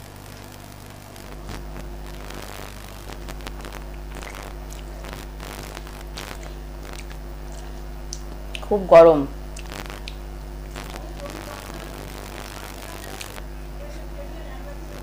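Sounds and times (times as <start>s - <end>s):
steady low hum: 0.0s - 15.0s
moist chewing mouth noises: 3.4s - 8.7s, 9.5s - 11.0s.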